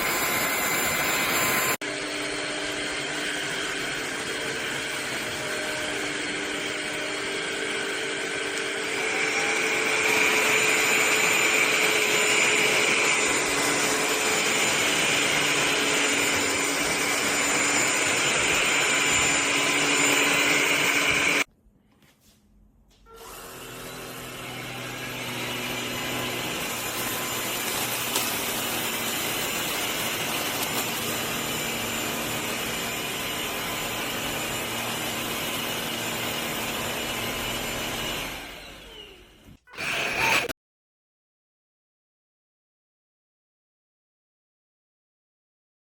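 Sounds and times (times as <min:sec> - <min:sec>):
vacuum motor whirring: 0:00.0 - 0:21.5, 0:23.1 - 0:40.5.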